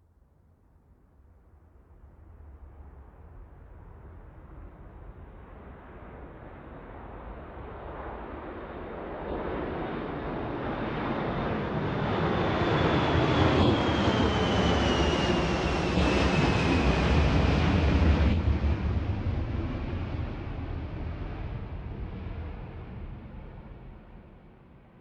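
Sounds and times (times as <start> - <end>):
aircraft engine noise: 8.9 - 24.2.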